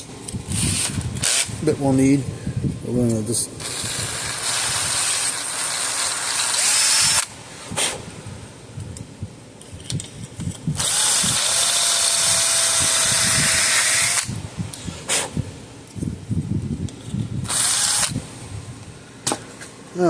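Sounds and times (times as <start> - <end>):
electric drill cutting: 3.6 - 7.3, 10.8 - 14.4, 17.5 - 18.2.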